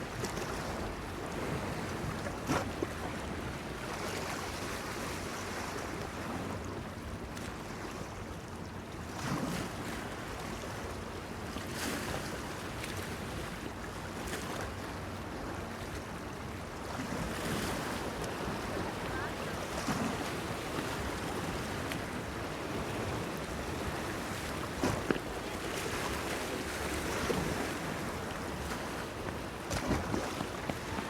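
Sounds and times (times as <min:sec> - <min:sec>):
light wind: 0:00.0 - 0:31.0
sea waves washing against pier: 0:17.1 - 0:31.0
water splashes: 0:24.1 - 0:31.0.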